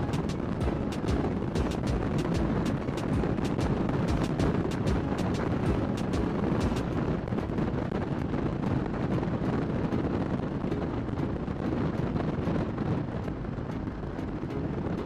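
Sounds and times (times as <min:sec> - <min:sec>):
motorcycle engine running: 0:00.0 - 0:07.1
wind noise on microphone: 0:00.0 - 0:15.0.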